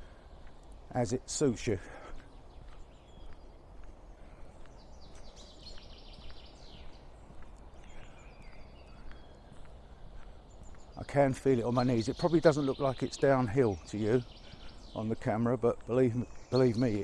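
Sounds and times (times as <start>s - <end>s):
bird chirps: 0.0s - 17.0s
soft footsteps on a lane: 0.0s - 17.0s.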